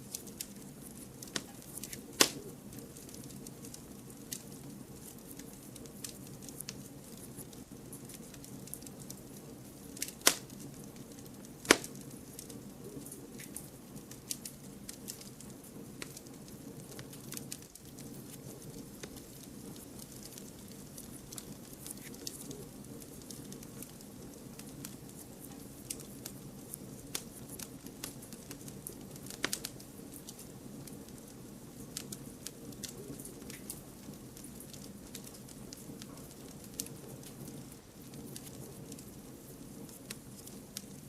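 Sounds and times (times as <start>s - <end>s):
fire crackling and popping: 0.0s - 41.0s
wood fire rumbling: 0.0s - 41.0s.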